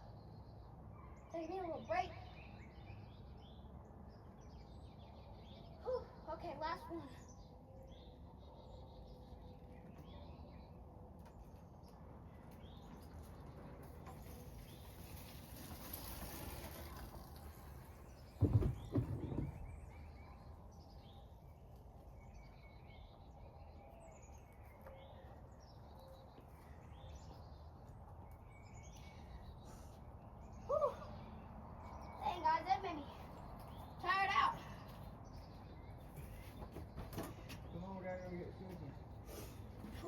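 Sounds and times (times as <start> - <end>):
birds chirping: 0.0 - 40.0
bike landing thumps: 18.1 - 19.7.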